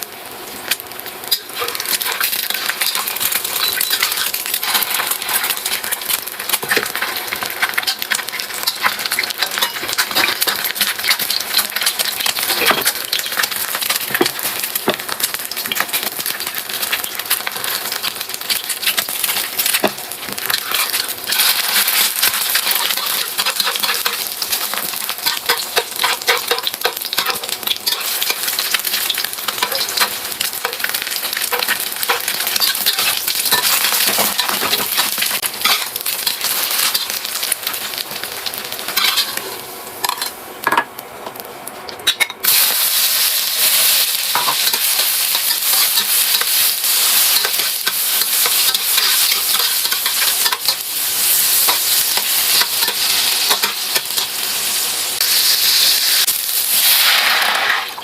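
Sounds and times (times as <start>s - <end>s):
food sizzling in oily pan: 0.0s - 58.0s
spatula scraping pan: 3.7s - 13.2s.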